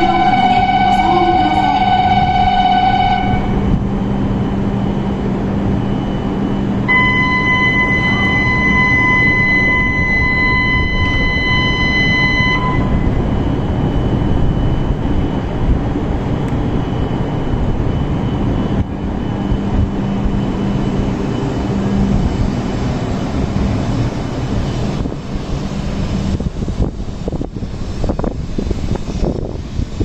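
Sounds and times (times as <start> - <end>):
high electronic tone: 0.0 - 23.8
high-speed train running noise: 0.0 - 30.0
low hum: 0.0 - 30.0.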